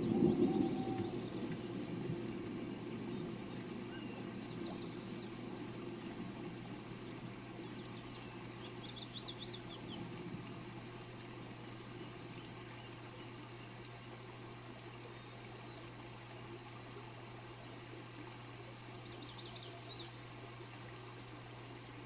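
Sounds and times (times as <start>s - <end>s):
birds chirping: 0.0s - 1.6s, 2.5s - 10.1s
rain hissing: 0.0s - 22.0s.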